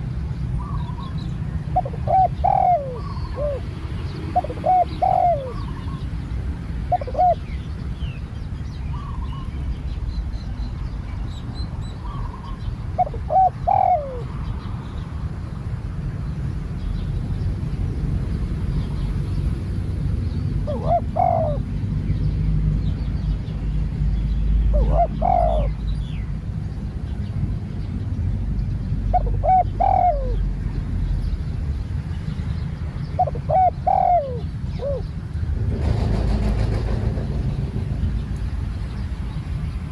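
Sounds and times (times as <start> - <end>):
passing vehicle noise: 0.0 - 39.9
dove cooing: 0.6 - 6.1, 6.8 - 7.6, 12.0 - 14.4, 20.6 - 21.7, 24.7 - 25.9, 29.1 - 30.5, 33.2 - 35.1.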